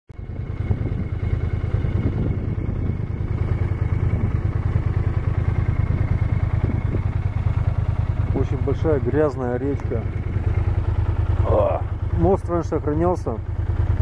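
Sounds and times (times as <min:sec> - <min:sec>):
motorcycle engine idling: 0:00.2 - 0:14.0.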